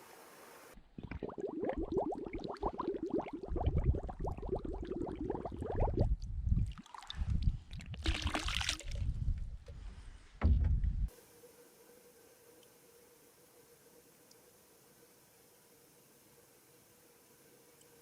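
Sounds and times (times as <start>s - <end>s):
water gurgling and lapping: 1.0s - 9.1s.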